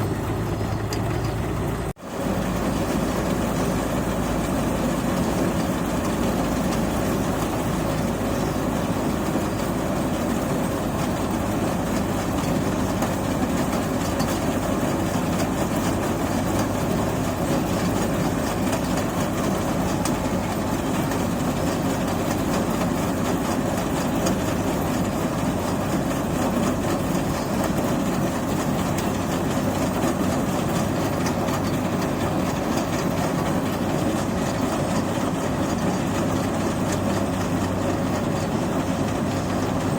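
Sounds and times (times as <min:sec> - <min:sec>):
machine engine drone: 0:00.0 - 0:13.4.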